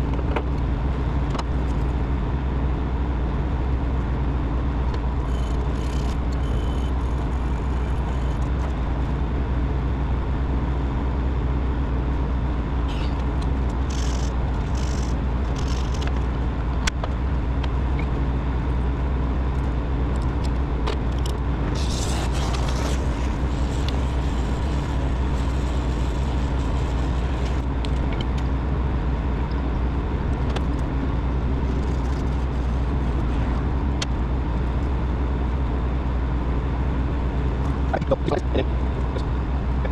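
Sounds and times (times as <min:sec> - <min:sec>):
machine humming: 0:12.7 - 0:16.7, 0:17.9 - 0:35.0.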